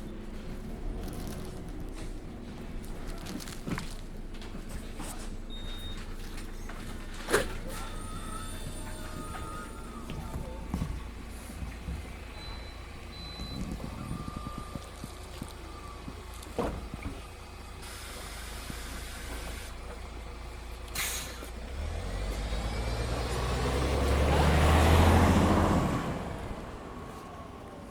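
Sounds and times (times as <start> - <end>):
bus engine: 0.0 - 27.9.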